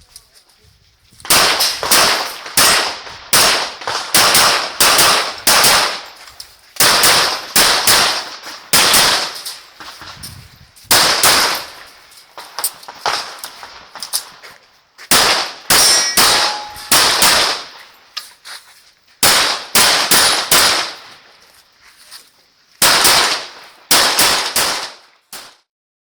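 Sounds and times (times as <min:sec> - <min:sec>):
pistol shots: 0:01.3 - 0:06.2, 0:06.8 - 0:09.7, 0:10.9 - 0:14.2, 0:15.1 - 0:17.9, 0:19.2 - 0:21.2, 0:22.8 - 0:25.6.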